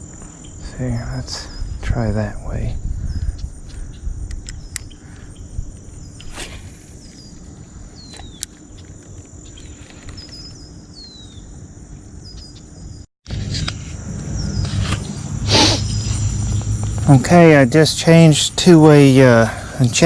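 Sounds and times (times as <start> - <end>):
high-pitched insect buzz: 13.3 - 17.3
low rumble: 13.3 - 18.5.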